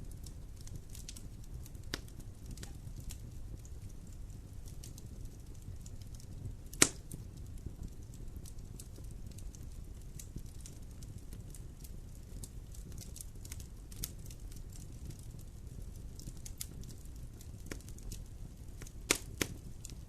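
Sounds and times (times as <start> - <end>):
fire rumbling and crackling: 0.0 - 20.0
loud fire pop: 6.7 - 7.0.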